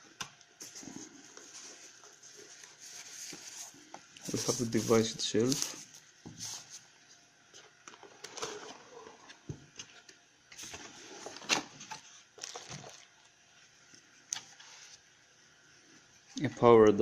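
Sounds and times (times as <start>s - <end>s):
packaging rustling and crinkling: 0.6s - 6.9s.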